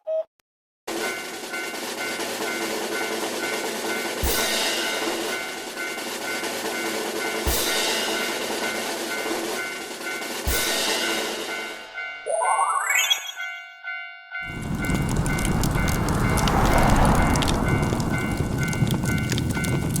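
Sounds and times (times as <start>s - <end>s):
train rumbling clatter: 14.4s - 20.0s.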